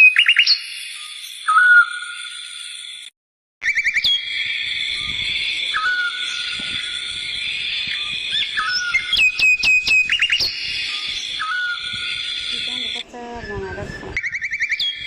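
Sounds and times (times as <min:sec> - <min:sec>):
whistled bird-like calls: 0:00.0 - 0:02.5, 0:03.6 - 0:15.0
steady high-pitched drone: 0:04.0 - 0:14.1.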